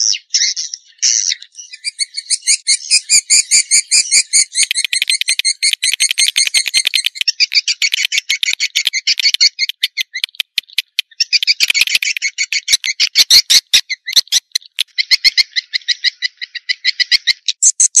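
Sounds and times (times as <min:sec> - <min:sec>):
swiftlets chattering twitter: 0:02.1 - 0:15.2.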